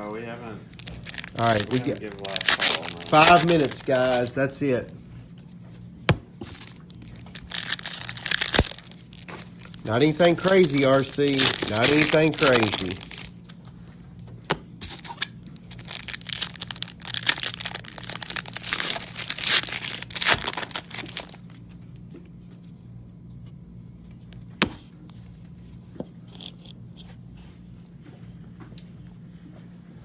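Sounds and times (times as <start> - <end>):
wrappers tearing and crinkling: 0.7 - 4.9, 6.4 - 13.5, 14.8 - 21.7.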